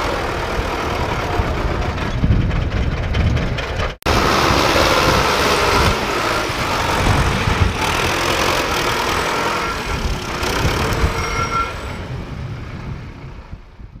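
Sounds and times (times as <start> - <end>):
tractor diesel engine running: 0.0 - 13.9.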